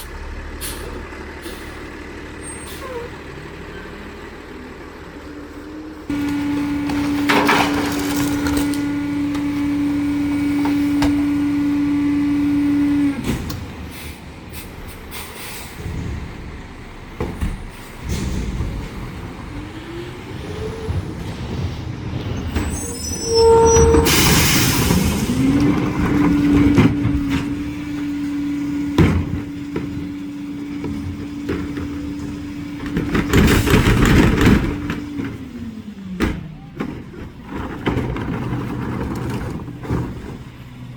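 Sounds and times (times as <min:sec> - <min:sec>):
garbage truck engine revving: 0:00.0 - 0:40.9
air brake hissing: 0:00.6 - 0:03.1, 0:13.9 - 0:15.9.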